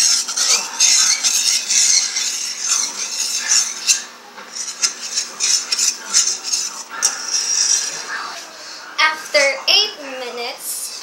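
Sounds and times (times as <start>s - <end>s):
spoon stirring in a bowl: 0.0s - 8.3s.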